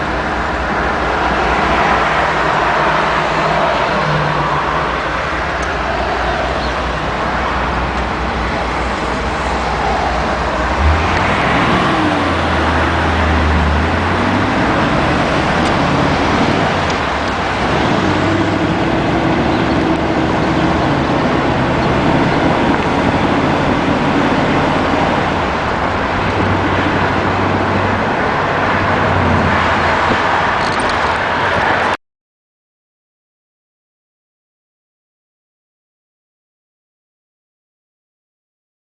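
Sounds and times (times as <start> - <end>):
car engine hum: 0.0 - 31.9
road and wind noise: 0.0 - 32.0.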